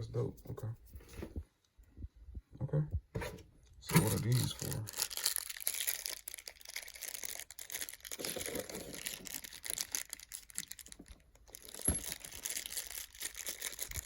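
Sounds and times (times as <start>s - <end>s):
small parts clicking and rattling: 3.9s - 14.0s
packaging rustling: 4.1s - 14.0s.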